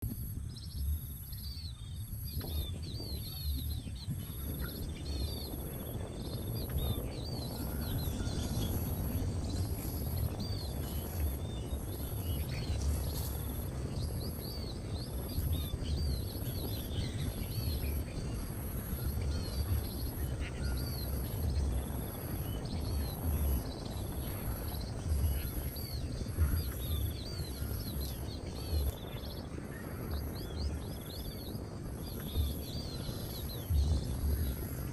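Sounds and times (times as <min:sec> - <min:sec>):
low rumble: 0:00.0 - 0:34.9
small birds chirping: 0:00.0 - 0:34.9.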